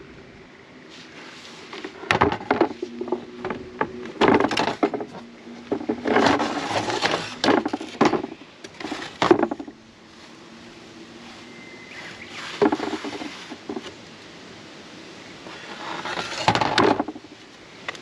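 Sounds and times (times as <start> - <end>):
wood scraping: 0.9 - 10.4, 11.2 - 14.0, 15.4 - 17.4.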